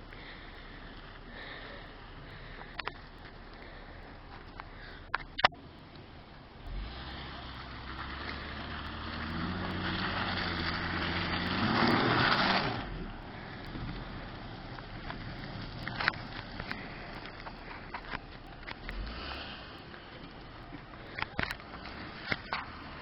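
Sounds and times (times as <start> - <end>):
tyre and road noise: 0.0 - 23.0
car engine revving: 6.6 - 23.0.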